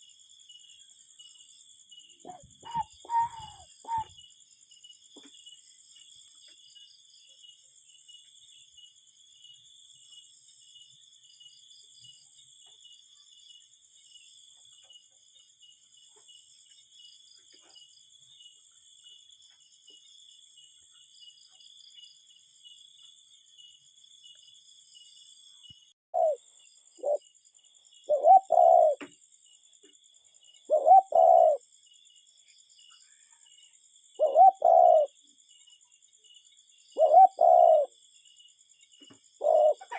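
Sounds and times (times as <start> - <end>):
insect chirring: 1.0 - 4.5, 25.5 - 39.9
cuckoo calling: 2.2 - 4.2, 26.2 - 26.4, 27.0 - 27.2, 28.1 - 29.1, 30.7 - 31.6, 34.2 - 35.1, 37.0 - 37.9, 39.4 - 39.9.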